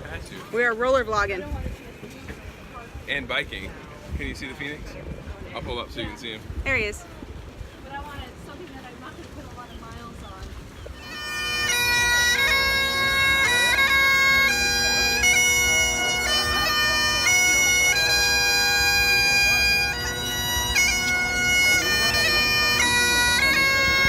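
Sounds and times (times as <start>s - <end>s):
bagpipes playing a tune: 10.9s - 24.0s.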